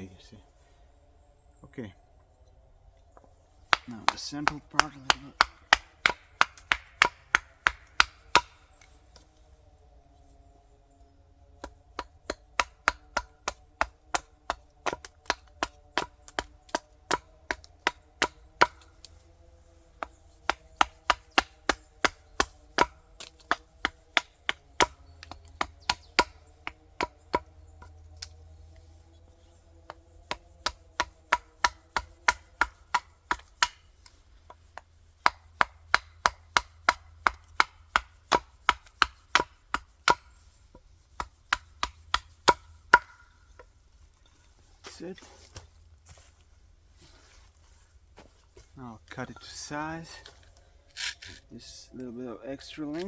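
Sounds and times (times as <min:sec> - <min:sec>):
faint steady drone: 0:00.0 - 0:37.6
axe strikes on wood: 0:03.7 - 0:08.9, 0:11.6 - 0:18.9, 0:20.0 - 0:28.2, 0:29.8 - 0:34.2, 0:35.2 - 0:43.2.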